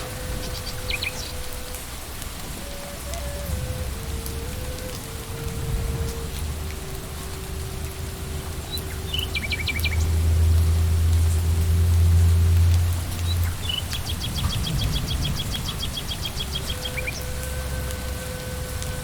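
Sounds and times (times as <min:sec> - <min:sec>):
bird chirps: 0:00.0 - 0:01.6, 0:13.6 - 0:17.3
steady rain falling: 0:00.0 - 0:19.0
low rumble: 0:02.5 - 0:18.7.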